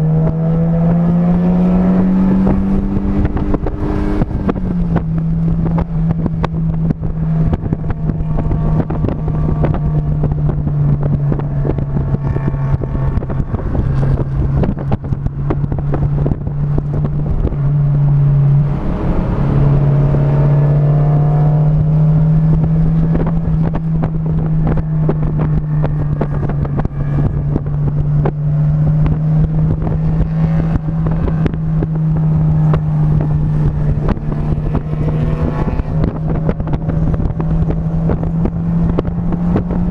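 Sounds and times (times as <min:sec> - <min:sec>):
racing engine running hard: 0:00.0 - 0:39.9
wind buffeting microphone: 0:00.0 - 0:39.9.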